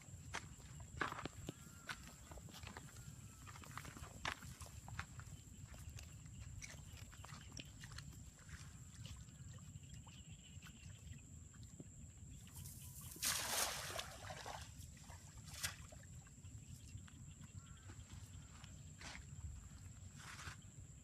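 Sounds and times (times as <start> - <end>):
water splash: 13.2 - 14.8.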